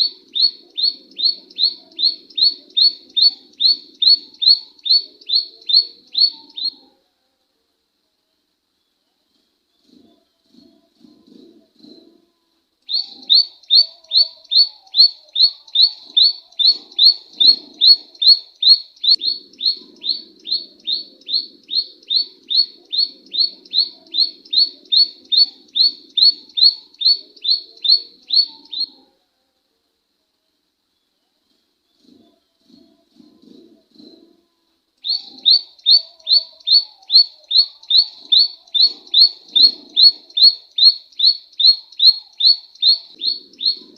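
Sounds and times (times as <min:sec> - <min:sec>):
songbird call notes: 0:00.0 - 0:06.9, 0:12.8 - 0:29.1, 0:35.0 - 0:43.9.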